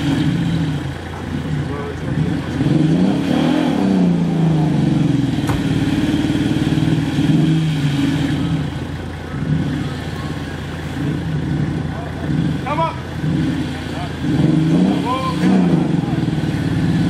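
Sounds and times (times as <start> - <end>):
engine revving under load: 0.0 - 17.0
sharp knock: 5.4 - 5.9.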